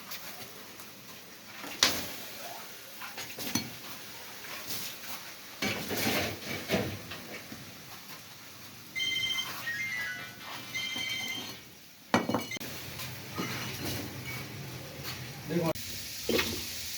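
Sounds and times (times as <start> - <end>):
metal utensils clanking on pot: 5.6 - 7.5, 13.3 - 14.5.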